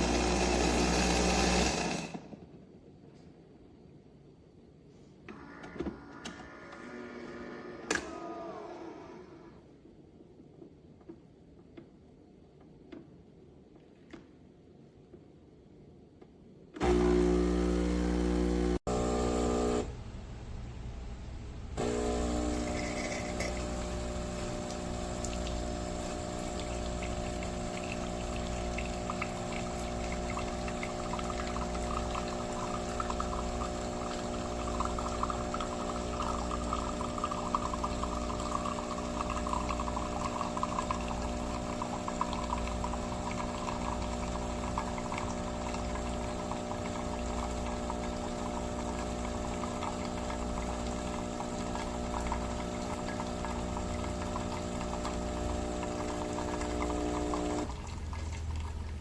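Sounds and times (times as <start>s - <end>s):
espresso machine pump hum: 0.0s - 2.1s, 16.8s - 20.7s, 21.8s - 59.0s
liquid pouring into cup: 21.8s - 59.0s.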